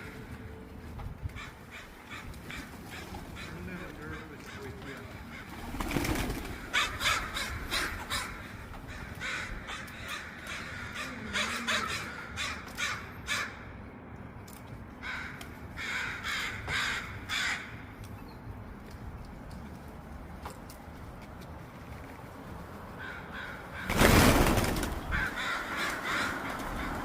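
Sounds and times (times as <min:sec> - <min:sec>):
crows cawing: 0:01.3 - 0:13.8, 0:14.9 - 0:18.0, 0:22.9 - 0:27.0.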